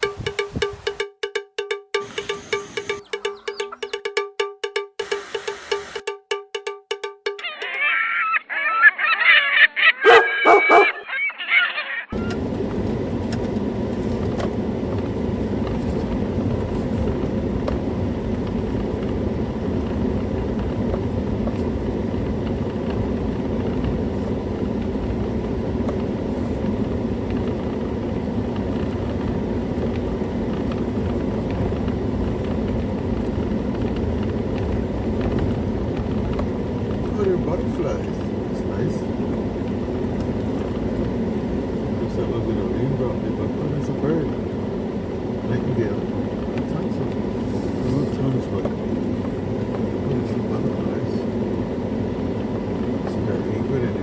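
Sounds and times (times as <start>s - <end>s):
loud honking calls: 7.4s - 12.3s.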